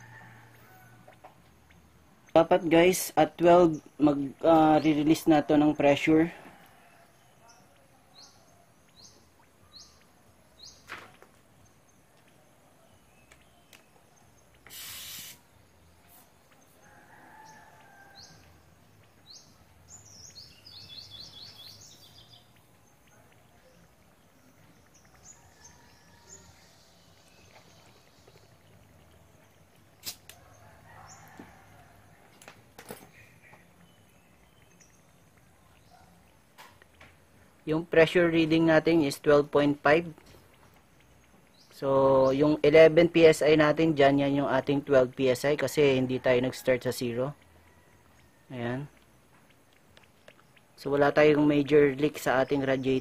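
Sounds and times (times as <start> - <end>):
small bird chirping: 6.9 - 10.9, 11.6 - 32.1, 33.0 - 53.0
short loud hiss: 14.6 - 15.5, 30.0 - 30.3.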